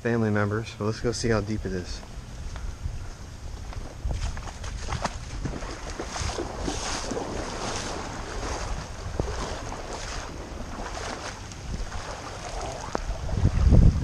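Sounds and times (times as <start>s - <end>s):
wind rumble on microphone: 1.1s - 14.0s
water sloshing with wading steps: 3.6s - 14.0s.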